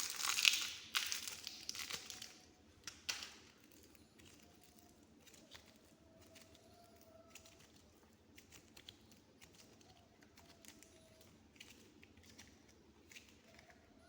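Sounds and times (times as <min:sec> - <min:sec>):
clay clicking under fingers: 0:00.3 - 0:14.0.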